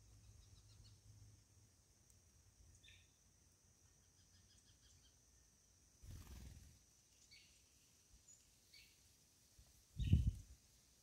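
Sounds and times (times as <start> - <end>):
faint bird chirps: 0.0 - 1.3, 2.7 - 9.1, 9.9 - 10.5.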